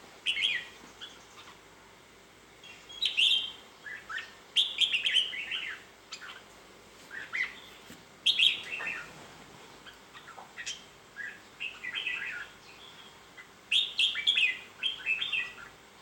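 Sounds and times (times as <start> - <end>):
bird singing warbled phrases: 0.2 - 1.7, 2.6 - 6.5, 7.1 - 16.0.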